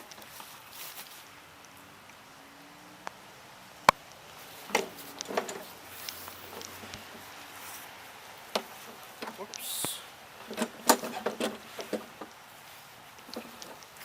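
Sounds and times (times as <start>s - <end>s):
hard objects clunking and rattling: 4.6s - 5.8s, 10.4s - 12.4s, 13.2s - 13.8s.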